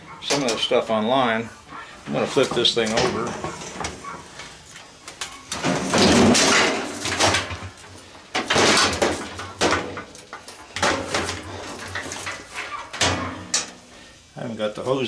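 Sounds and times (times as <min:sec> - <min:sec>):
metal cabinet scraping and clattering: 0:02.1 - 0:04.1, 0:05.5 - 0:07.8.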